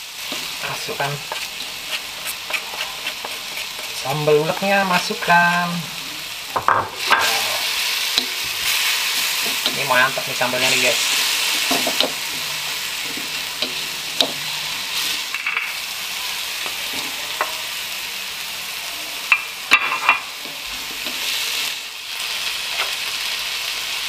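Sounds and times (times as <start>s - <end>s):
wooden spatula scraping wok: 0.0s - 15.8s, 16.5s - 17.7s
paste sizzling in hot oil: 0.0s - 24.0s.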